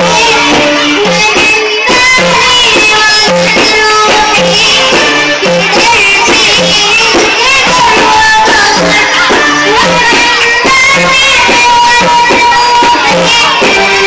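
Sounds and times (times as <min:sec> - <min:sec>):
girl singing: 0:00.0 - 0:14.0
plucked strings backing track: 0:00.0 - 0:14.0.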